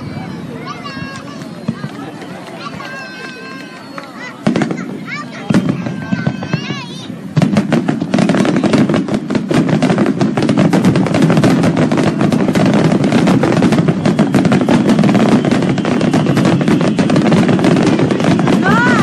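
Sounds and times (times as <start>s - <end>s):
firecrackers banging: 0.0s - 19.0s.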